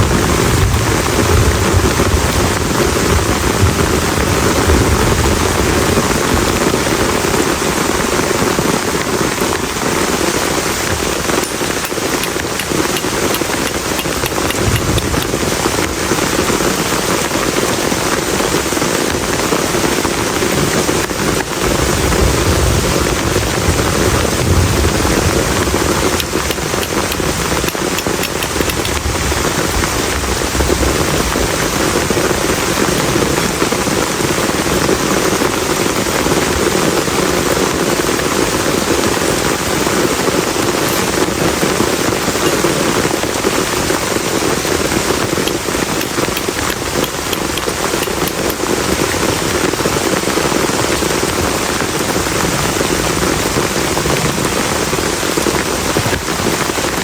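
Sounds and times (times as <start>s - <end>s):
heavy rain on plastic tarp: 0.0s - 57.0s.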